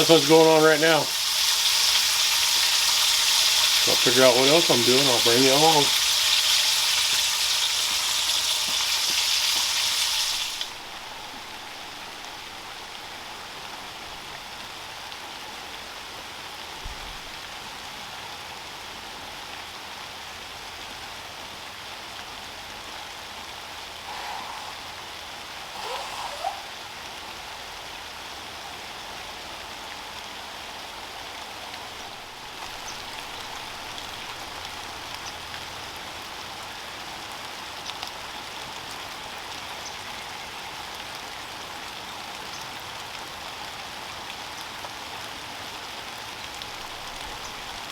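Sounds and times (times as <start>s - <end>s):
bacon sizzling in a skillet: 0.0s - 14.3s, 32.0s - 37.0s
steady rain: 0.0s - 47.9s.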